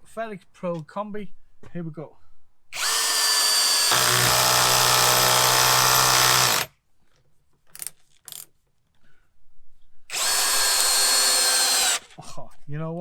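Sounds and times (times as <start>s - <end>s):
cordless drill motor whine: 2.8s - 6.7s, 10.1s - 12.1s.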